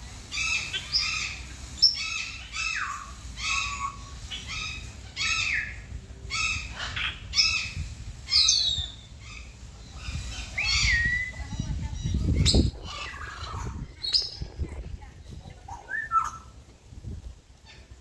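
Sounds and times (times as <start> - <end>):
birds calling: 0.0 - 16.7.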